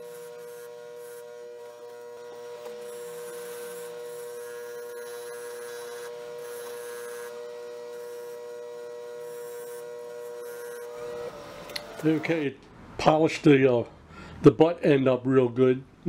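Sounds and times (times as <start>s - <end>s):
metal rubbing on polishing wheel: 0.0s - 8.5s
polishing wheel whining: 0.0s - 12.6s.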